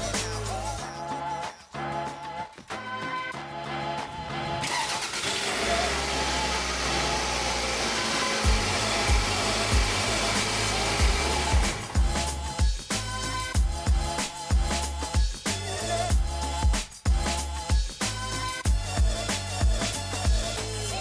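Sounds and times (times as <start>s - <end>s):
music beat: 0.0s - 4.6s, 7.2s - 21.0s
car engine starting and idling: 4.4s - 12.4s.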